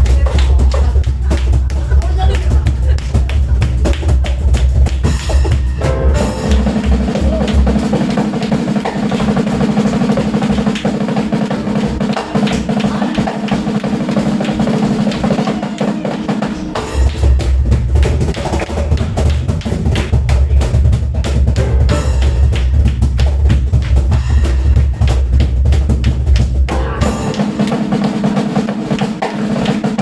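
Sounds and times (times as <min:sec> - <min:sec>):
heavy bass drum beats: 0:00.0 - 0:30.0
rapid drum roll: 0:00.0 - 0:30.0.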